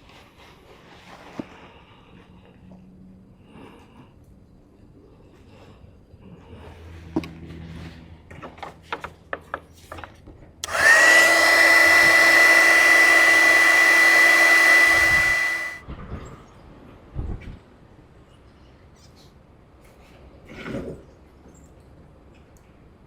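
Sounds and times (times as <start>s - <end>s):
heat gun fan whine and air rush: 10.6s - 15.8s.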